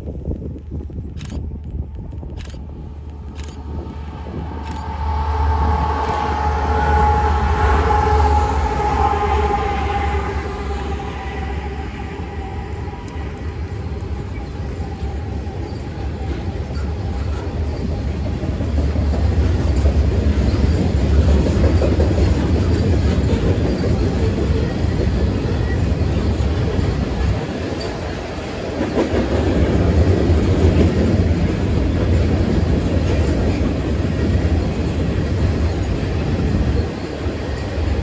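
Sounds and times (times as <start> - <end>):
train wheels on rails: 0.0 - 38.0
train horn: 4.3 - 15.9.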